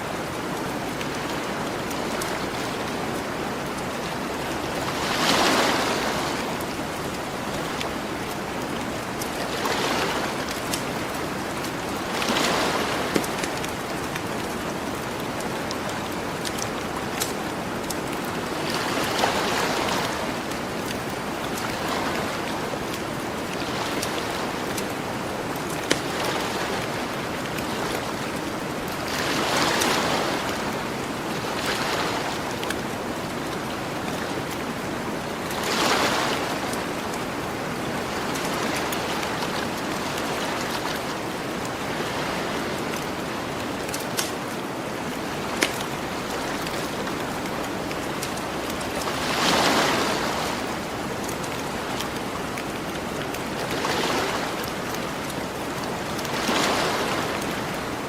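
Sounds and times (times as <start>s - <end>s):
ocean waves washing ashore: 0.0s - 58.0s
campfire crackling: 10.4s - 18.6s, 20.4s - 21.8s, 42.8s - 49.2s.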